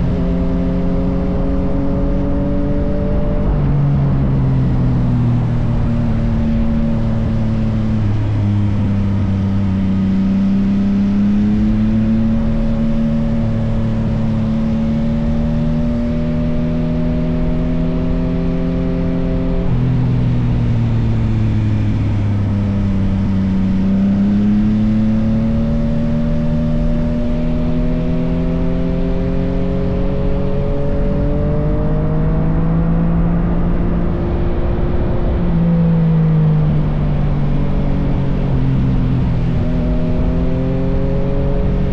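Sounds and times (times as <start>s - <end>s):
motorcycle engine running: 3.0s - 29.3s.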